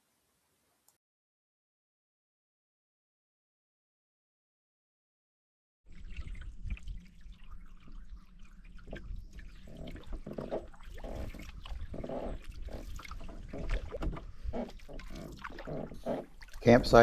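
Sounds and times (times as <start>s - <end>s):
paddle strokes splashing: 5.9s - 17.0s
water trickling and dripping: 5.9s - 17.0s.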